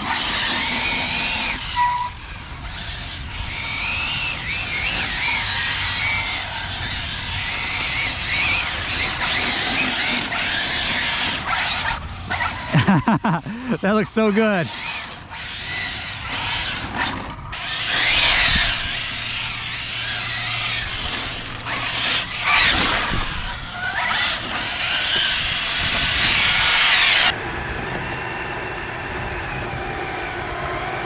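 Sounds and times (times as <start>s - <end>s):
rc car electric motor whining: 0.0s - 27.4s
rushing tyre noise: 0.0s - 31.0s.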